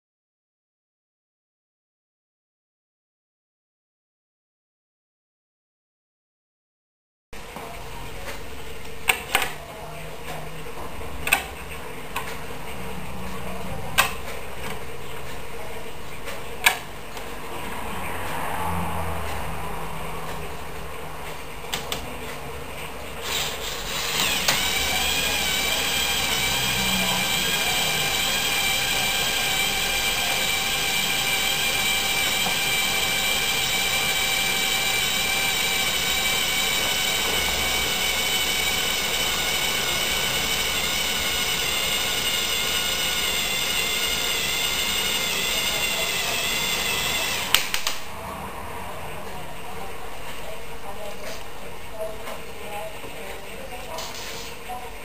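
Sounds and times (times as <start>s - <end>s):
electric motor whine: 23.2s - 48.1s.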